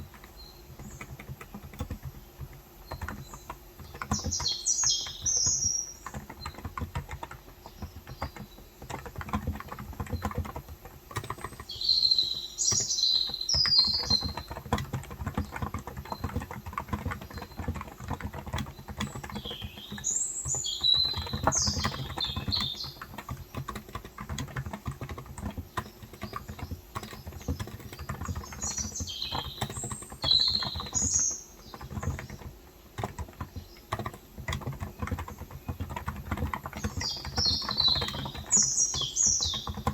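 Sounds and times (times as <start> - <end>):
small birds chirping: 0.0 - 39.9
soft keyboard typing: 0.0 - 39.9.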